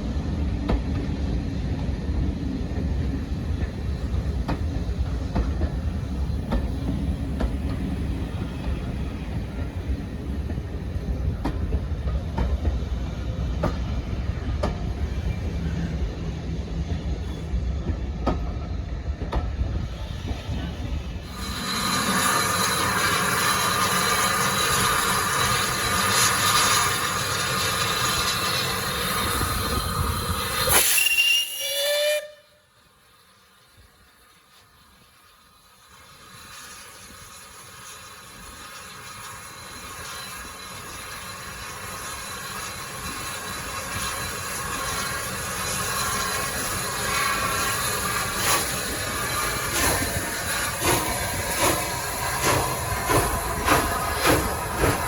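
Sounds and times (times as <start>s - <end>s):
hissing steam: 0.0s - 55.0s
steam locomotive working hard: 0.0s - 55.0s
train approaching: 0.0s - 55.0s
whistle-like tones: 30.7s - 32.5s.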